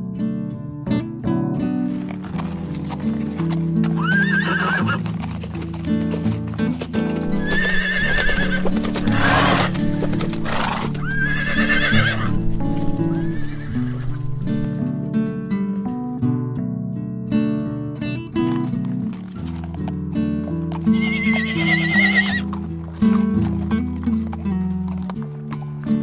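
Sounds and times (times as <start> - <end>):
acoustic guitar music: 0.0 - 26.0
horse whinnying: 3.8 - 5.2, 7.3 - 14.7, 20.9 - 22.6.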